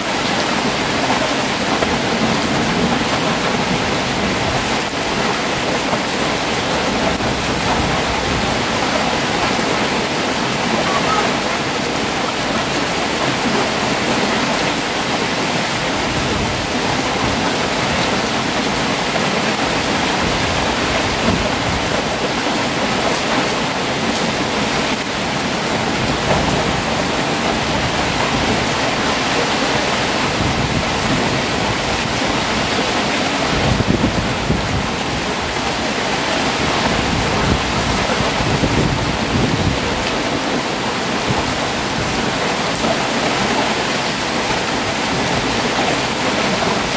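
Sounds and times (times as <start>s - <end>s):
heavy rain pouring: 0.0s - 46.9s
thunder rumbling: 0.6s - 14.7s.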